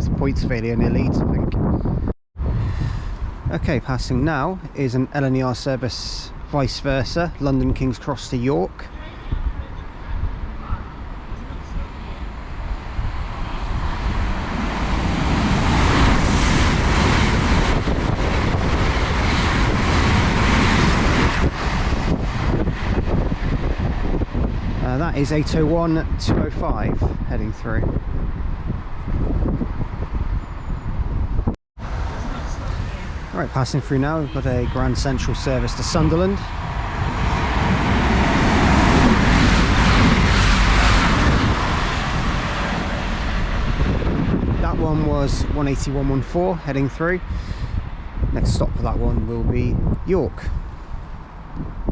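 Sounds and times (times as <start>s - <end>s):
train passing at speed: 9.0s - 26.2s, 31.8s - 48.8s.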